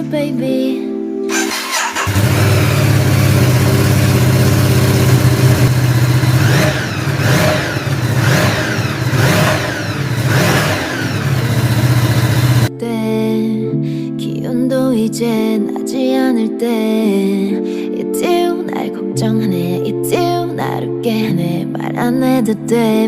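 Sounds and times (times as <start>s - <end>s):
motorcycle engine idling and revving: 1.3s - 12.7s.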